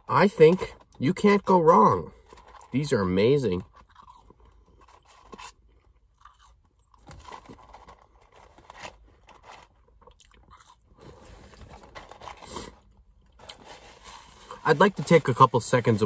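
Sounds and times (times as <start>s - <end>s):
person crunching fries: 3.6s - 14.6s.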